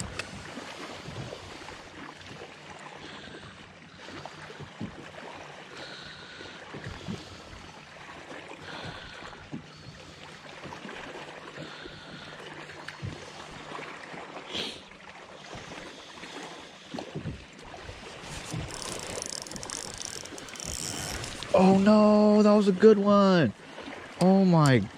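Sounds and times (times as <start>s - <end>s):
water lapping at kayak: 0.0s - 24.9s.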